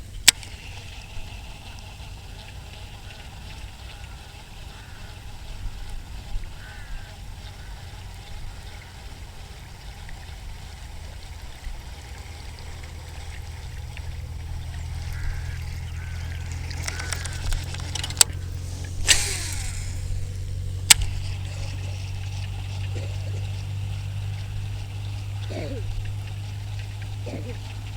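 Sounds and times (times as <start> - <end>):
wind buffeting microphone: 10.5 - 22.9
sharp clicks: 16.5 - 21.8
short rushing burst: 18.4 - 21.1.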